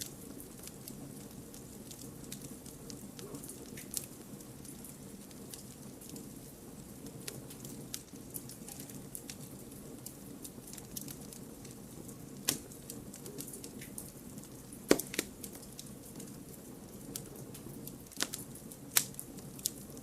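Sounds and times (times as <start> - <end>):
campfire crackles and pops: 0.0 - 20.0
low rush of flames: 0.0 - 20.0.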